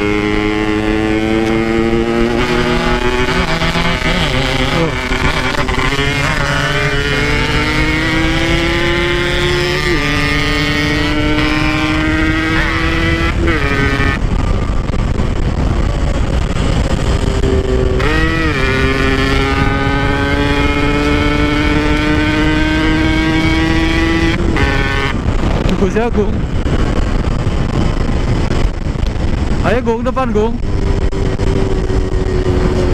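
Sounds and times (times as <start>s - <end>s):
low rumble: 0.0s - 32.9s
motorcycle engine revving: 0.0s - 32.9s.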